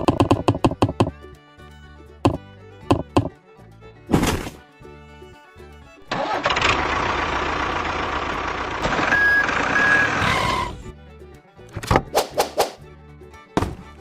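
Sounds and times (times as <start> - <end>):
truck engine running: 5.8 - 10.9
short high beeps: 9.1 - 10.4.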